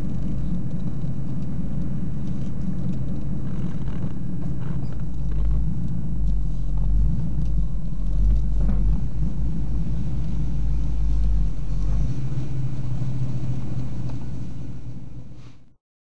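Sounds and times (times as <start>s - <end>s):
car engine low rumble: 0.0s - 15.8s.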